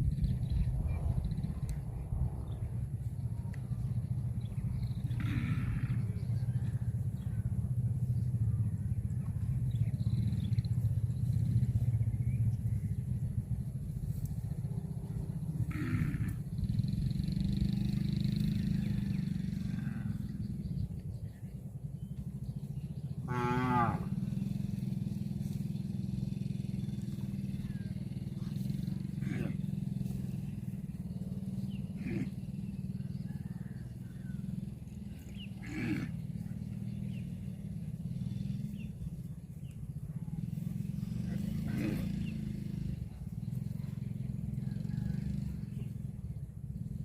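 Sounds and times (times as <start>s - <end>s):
cattle mooing: 5.1s - 6.2s, 15.6s - 16.4s, 19.5s - 20.4s, 23.2s - 24.2s, 29.0s - 29.7s, 31.8s - 32.4s, 35.2s - 36.4s, 41.3s - 42.2s.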